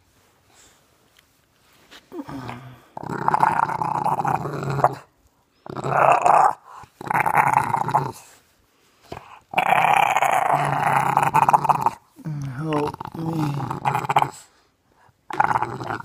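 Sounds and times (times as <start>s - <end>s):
puppy growling and grumbling: 2.1s - 8.3s, 9.1s - 14.5s, 15.3s - 16.0s.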